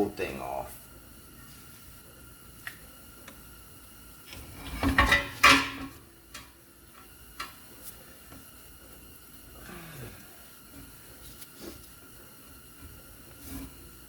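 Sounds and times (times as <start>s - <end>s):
metal clanking and scraping: 4.3s - 6.5s.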